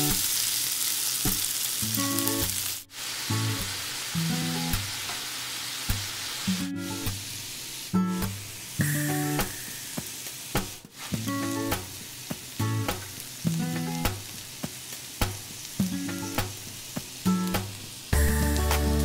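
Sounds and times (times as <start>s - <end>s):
food sizzling in a pan: 0.0s - 19.0s
plucked background music: 8.2s - 10.1s, 17.5s - 19.0s.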